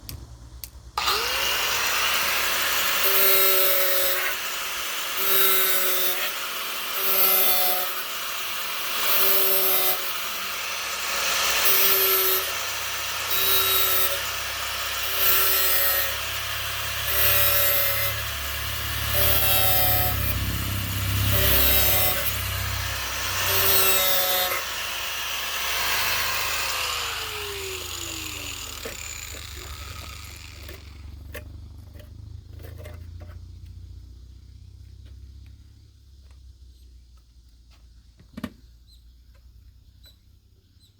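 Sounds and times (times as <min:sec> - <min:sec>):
power tool cutting in strokes: 0:01.0 - 0:31.4.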